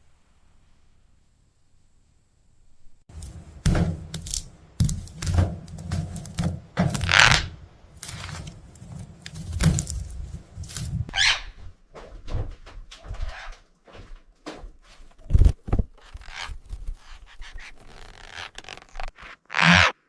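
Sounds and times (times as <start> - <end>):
parrot harsh call: 11.1 - 11.6.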